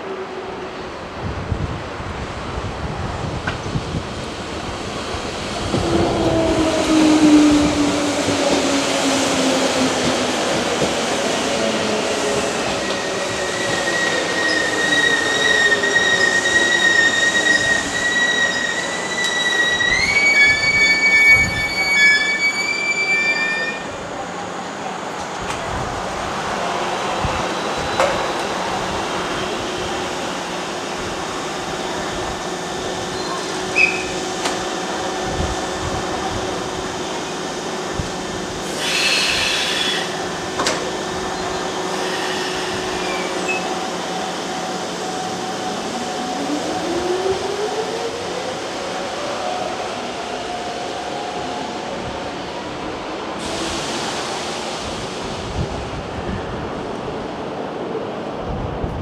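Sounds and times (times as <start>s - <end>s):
broad hiss: 38.5s - 40.4s
hissing air burst: 38.6s - 40.3s, 41.9s - 43.4s, 53.4s - 55.4s.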